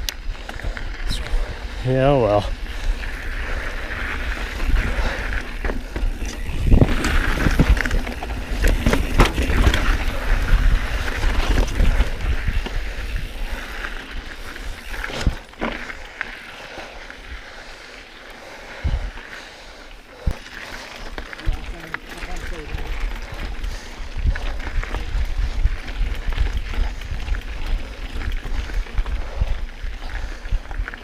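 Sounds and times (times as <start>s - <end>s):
bike tyres on dirt trail: 0.0s - 31.0s
bike clattering and knocks: 6.8s - 10.0s.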